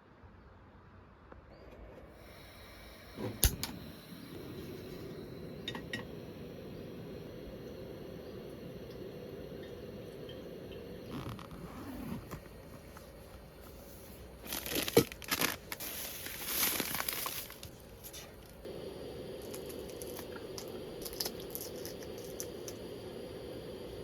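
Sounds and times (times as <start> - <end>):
sharp click: 3.4 - 3.8
crinkling tearing handling noise: 14.4 - 18.6.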